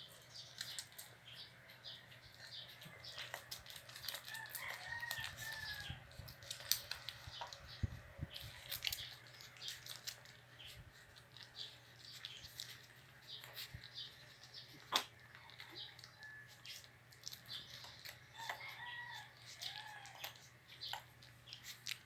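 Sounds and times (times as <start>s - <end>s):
sharp clicks and snaps: 0.5s - 1.1s
faint rooster crowing: 4.0s - 6.9s, 15.1s - 16.9s, 18.3s - 20.5s.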